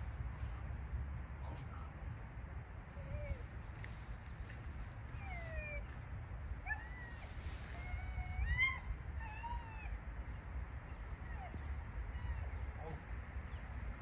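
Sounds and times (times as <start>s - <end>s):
low rumble of wind: 0.0s - 14.0s
birds whistling: 11.0s - 13.4s.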